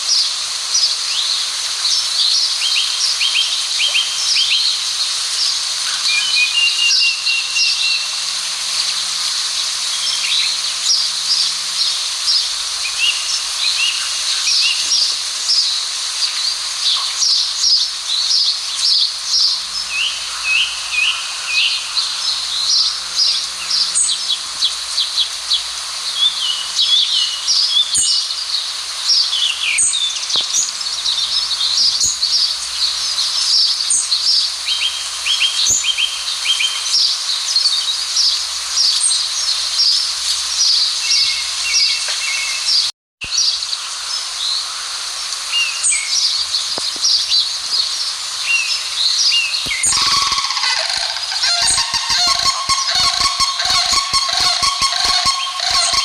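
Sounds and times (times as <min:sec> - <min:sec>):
songbirds chirping and trilling: 0:43.6 - 0:56.0.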